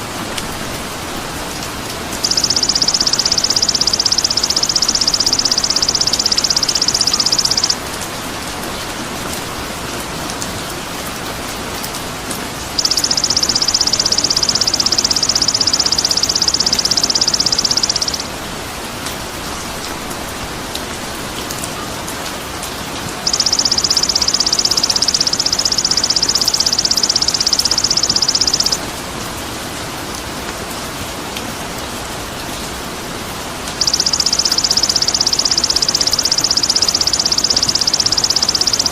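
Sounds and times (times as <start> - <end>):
steady rain-like hiss: 0.0 - 38.9
high buzzing bird trill: 2.2 - 7.8, 12.8 - 18.3, 23.3 - 28.8, 33.8 - 38.9.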